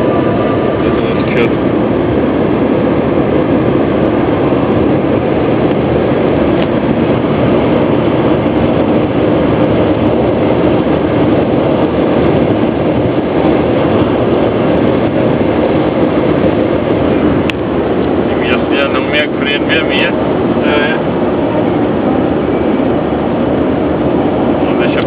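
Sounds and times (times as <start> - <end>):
car engine and tyre noise: 0.0 - 25.0.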